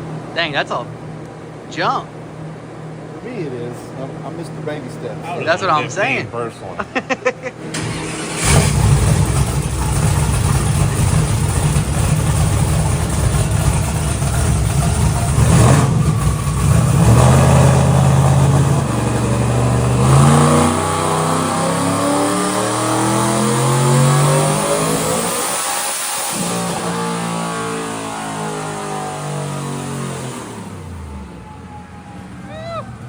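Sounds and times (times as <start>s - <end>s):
tires spinning on rollers: 7.7s - 33.0s
truck engine at full throttle: 7.7s - 33.0s.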